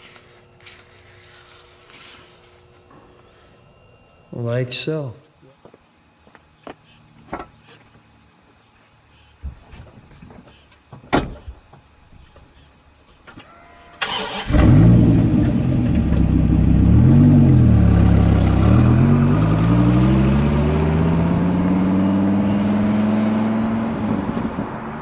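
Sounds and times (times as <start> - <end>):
car engine starting and revving: 14.0 - 25.0.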